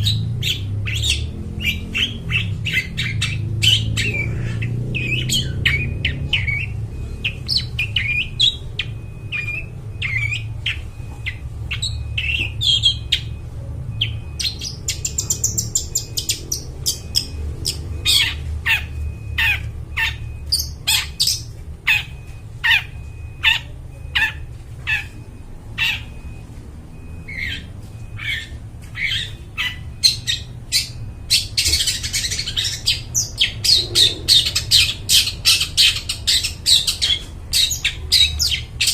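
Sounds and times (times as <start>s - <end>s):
shrike harsh squawks and chirps: 25.8s - 26.4s, 27.3s - 38.9s.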